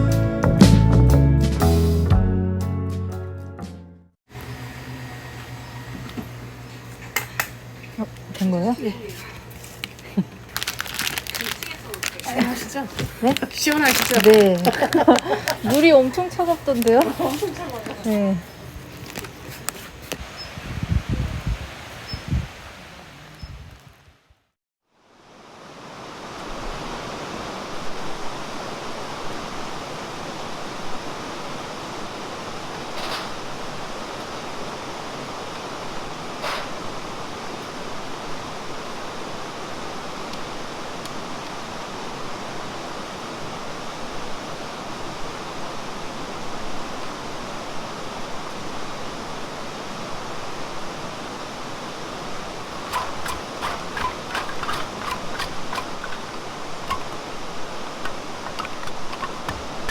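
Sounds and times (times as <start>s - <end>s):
stream rushing over rocks: 25.1s - 59.9s.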